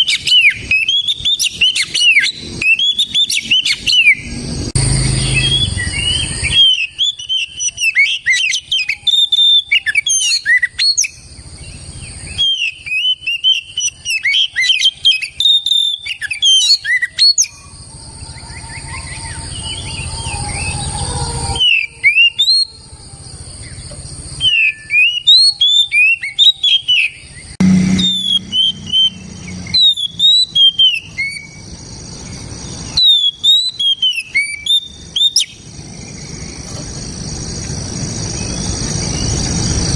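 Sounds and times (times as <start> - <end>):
magpie-robin singing: 0.0 - 11.2, 12.1 - 17.8, 24.4 - 36.7.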